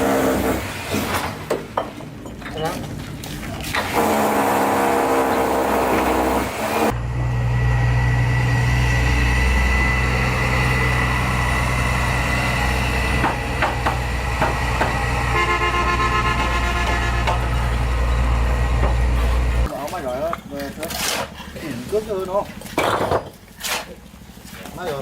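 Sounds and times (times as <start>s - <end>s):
vehicle engine running: 6.9s - 22.8s
horn-like tone: 15.2s - 17.6s.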